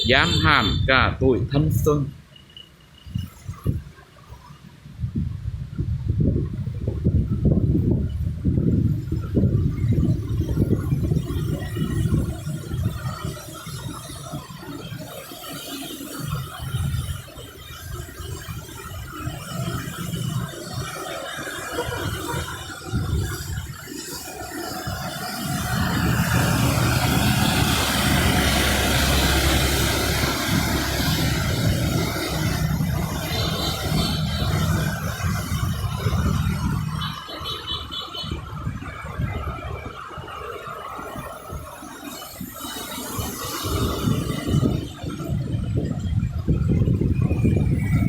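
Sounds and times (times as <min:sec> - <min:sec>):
traffic engine rumble: 0:00.0 - 0:48.0
wide hiss of wet road: 0:19.6 - 0:36.6, 0:42.1 - 0:45.1.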